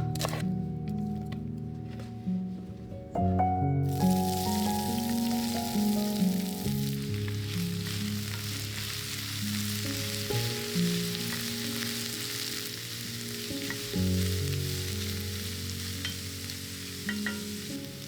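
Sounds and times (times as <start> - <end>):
soft background music: 0.0 - 18.0
food sizzling in a pan: 3.9 - 18.0.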